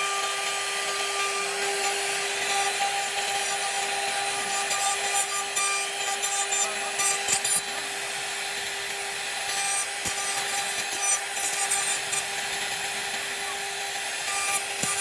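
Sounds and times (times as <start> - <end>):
router bit cutting wood: 0.0 - 15.0.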